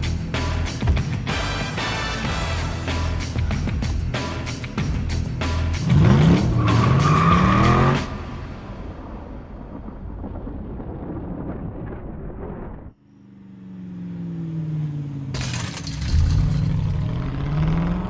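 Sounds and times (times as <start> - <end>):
car engine revving: 5.7 - 8.9, 13.2 - 18.0
dense rumbling: 8.1 - 12.9.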